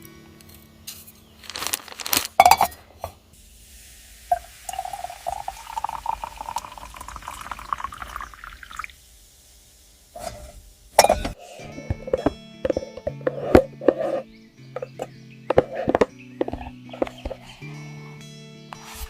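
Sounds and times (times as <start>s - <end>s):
liquid pouring into container: 4.3s - 9.0s
sharp handling knocks: 11.0s - 17.4s.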